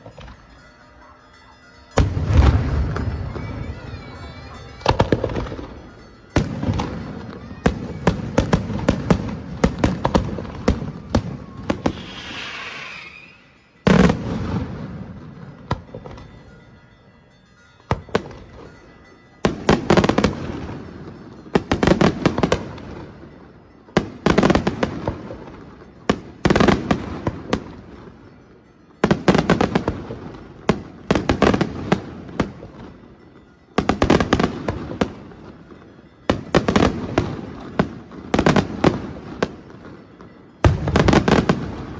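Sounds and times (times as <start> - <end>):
firework bangs and crackling: 2.0 - 4.1, 4.8 - 16.3, 33.8 - 41.9
rising hissing firework: 11.9 - 13.5.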